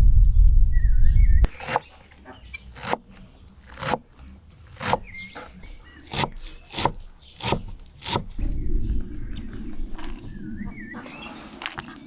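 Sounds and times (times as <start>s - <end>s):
heavy low rumble: 0.0s - 1.5s, 7.0s - 11.3s
small bird chirping: 0.2s - 11.5s.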